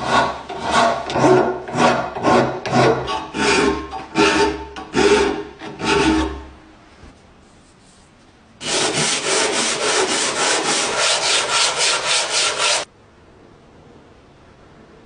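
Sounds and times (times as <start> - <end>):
hand sanding strokes: 7.7 - 12.9.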